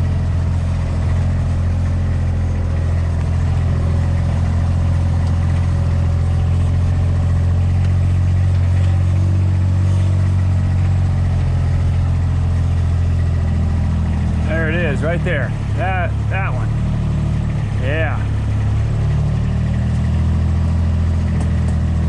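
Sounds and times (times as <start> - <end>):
vehicle engine running steadily: 0.0 - 22.0.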